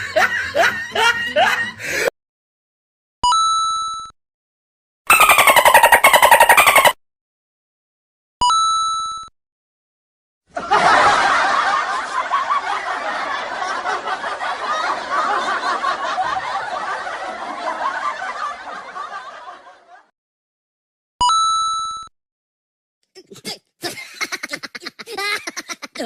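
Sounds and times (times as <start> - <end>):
crowd laughing: 0.0 - 2.1, 5.1 - 7.0, 10.5 - 20.1, 23.8 - 26.0
short ringing tone: 8.4 - 9.3, 21.2 - 22.1.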